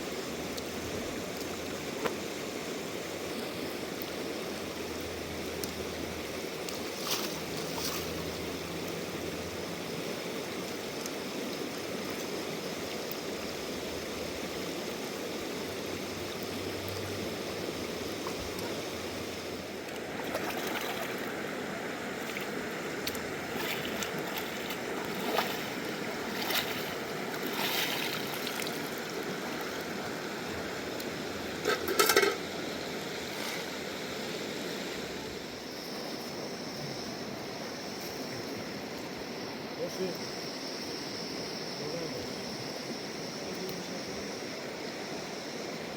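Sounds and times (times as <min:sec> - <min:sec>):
river rushing: 0:16.2 - 0:31.6.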